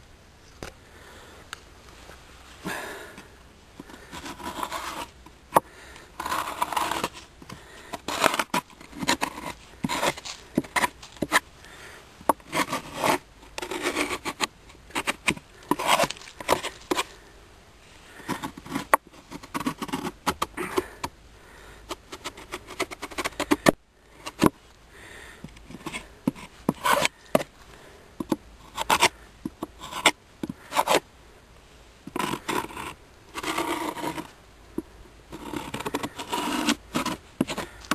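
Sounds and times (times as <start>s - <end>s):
hive tool scraping wood: 3.8s - 11.5s, 12.2s - 17.2s, 18.1s - 21.1s, 21.9s - 24.6s, 25.4s - 27.6s, 28.2s - 31.0s, 32.1s - 34.4s, 35.3s - 37.9s.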